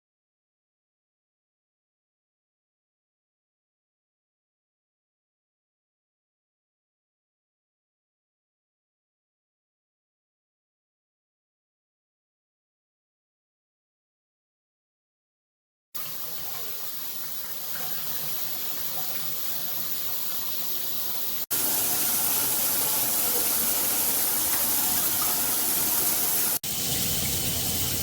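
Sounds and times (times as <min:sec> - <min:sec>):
shower water spraying: 0:16.0 - 0:28.0.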